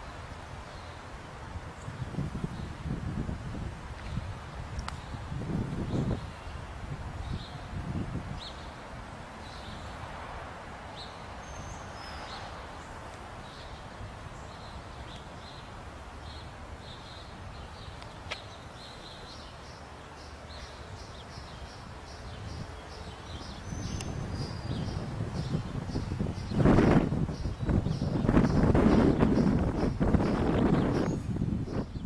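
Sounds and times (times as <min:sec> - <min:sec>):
birds chirping: 0:09.4 - 0:10.1, 0:10.9 - 0:32.0.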